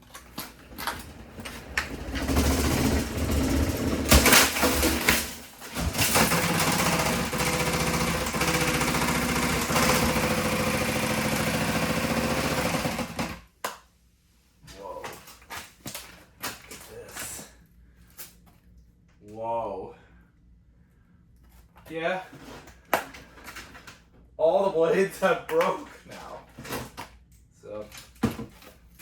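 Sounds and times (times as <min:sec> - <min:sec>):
broken fan blades rattling: 0:00.5 - 0:13.4
fan motor humming: 0:00.5 - 0:13.4.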